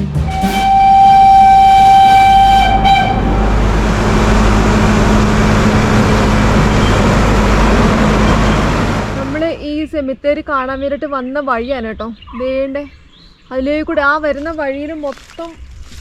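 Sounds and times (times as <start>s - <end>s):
train running rumble: 0.0s - 9.6s
train horn blast: 0.2s - 9.4s.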